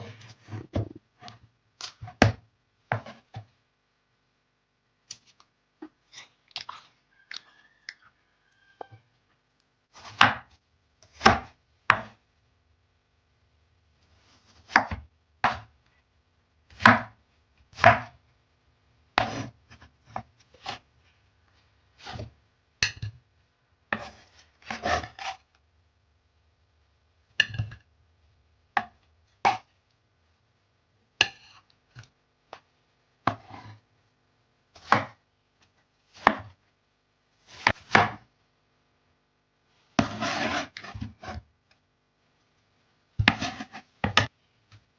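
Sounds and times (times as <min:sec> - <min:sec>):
knife chopping on cutting board: 0:02.0 - 0:03.4, 0:10.0 - 0:10.5, 0:11.1 - 0:12.2, 0:14.6 - 0:15.7, 0:16.7 - 0:18.2, 0:19.2 - 0:20.8, 0:23.9 - 0:25.4, 0:33.2 - 0:33.7, 0:34.8 - 0:35.2, 0:36.2 - 0:36.6, 0:37.5 - 0:38.2, 0:40.0 - 0:41.4, 0:43.2 - 0:44.3.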